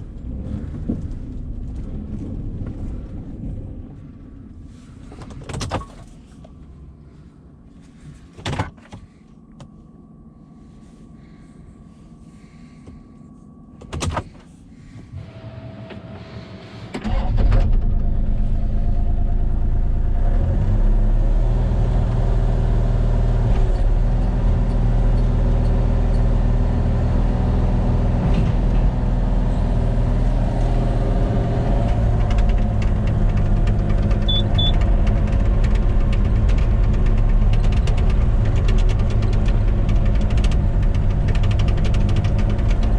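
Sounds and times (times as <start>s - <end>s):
engine starting and idling: 14.0s - 19.9s, 31.5s - 42.9s.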